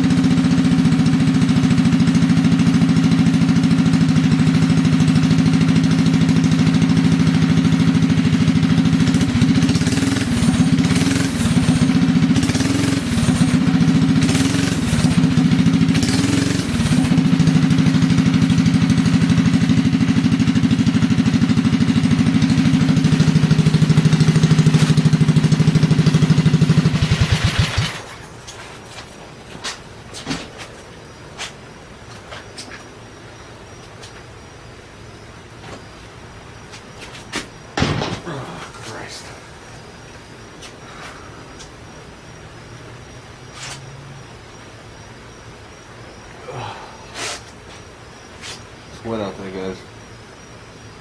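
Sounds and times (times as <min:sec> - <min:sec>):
mini bike engine running: 0:00.0 - 0:28.4.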